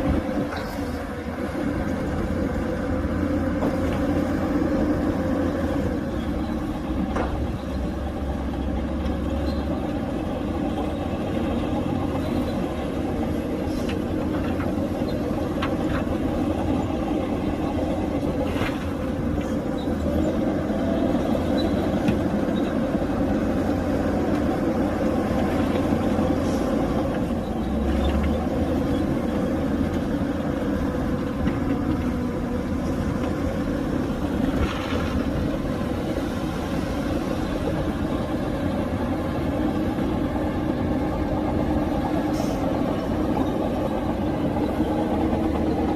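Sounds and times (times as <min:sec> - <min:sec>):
heavy diesel machinery running: 0:00.0 - 0:45.9.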